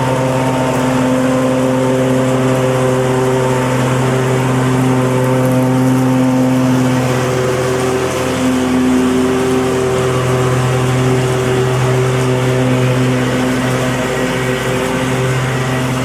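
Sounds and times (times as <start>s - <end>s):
lawn mower engine running: 0.0s - 16.0s.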